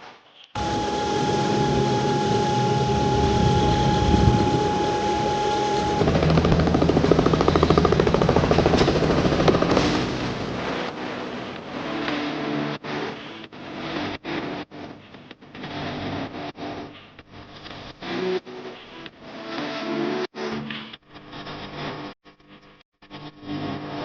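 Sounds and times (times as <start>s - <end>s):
helicopter rotor chopping: 0.6s - 11.2s
helicopter turbine whine: 0.6s - 11.5s.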